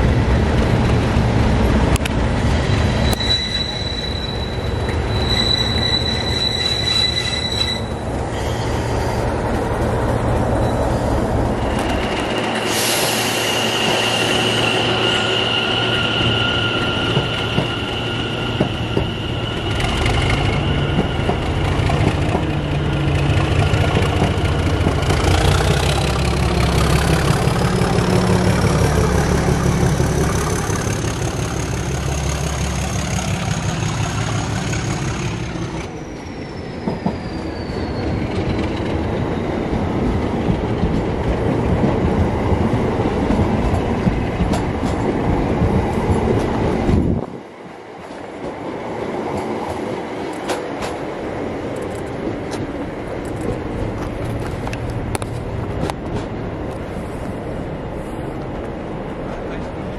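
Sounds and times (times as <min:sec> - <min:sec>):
diesel locomotive engine: 0:00.0 - 0:59.9
train running in: 0:00.0 - 0:59.9
high locomotive whistle: 0:02.6 - 0:09.0, 0:12.6 - 0:23.2.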